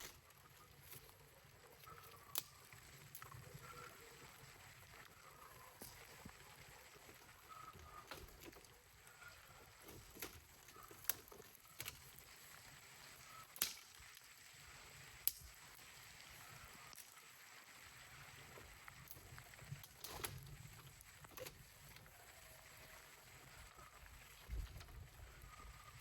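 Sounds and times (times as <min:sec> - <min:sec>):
sharp clicks or snaps: 0:13.5 - 0:14.3.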